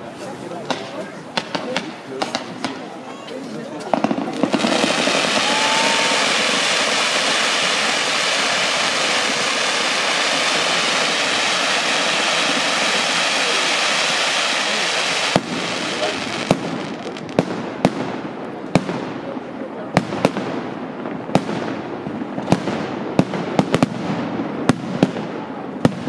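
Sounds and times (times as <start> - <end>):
fireworks hissing and crackling: 0.0 - 26.0
firework bang: 3.8 - 19.3.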